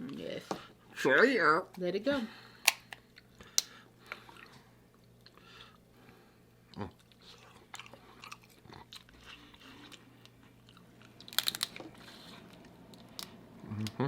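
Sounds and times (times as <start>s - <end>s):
close-up chewing: 6.7s - 14.0s.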